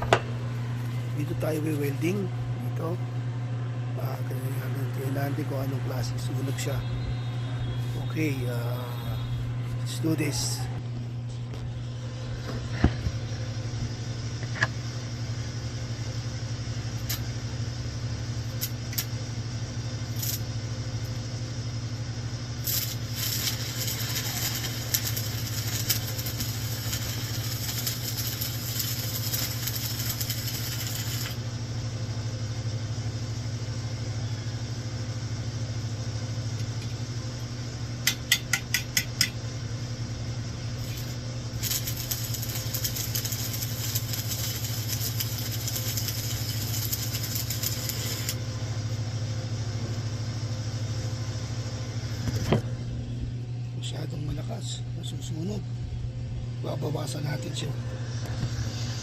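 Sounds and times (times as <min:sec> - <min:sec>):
welding arc crackling: 0:00.0 - 0:02.9, 0:04.0 - 0:07.0, 0:07.6 - 0:10.6, 0:12.8 - 0:31.8, 0:40.2 - 0:49.2
steady low hum: 0:00.0 - 0:59.0.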